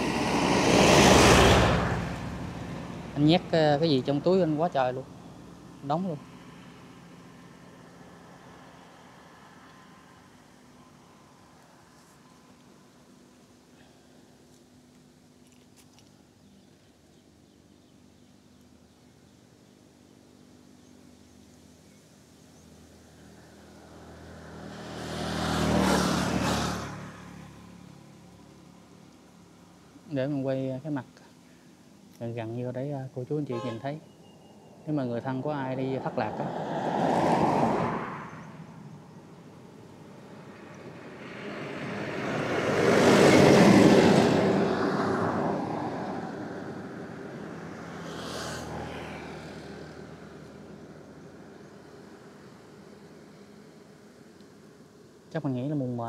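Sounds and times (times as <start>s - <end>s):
vehicle passing by: 0.0s - 10.4s, 23.1s - 28.8s, 35.0s - 54.2s.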